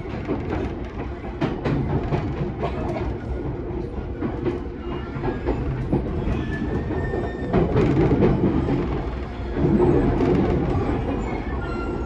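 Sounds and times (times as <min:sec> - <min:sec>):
train low rumble: 0:00.0 - 0:12.0
faint wheel squeal: 0:11.1 - 0:12.0.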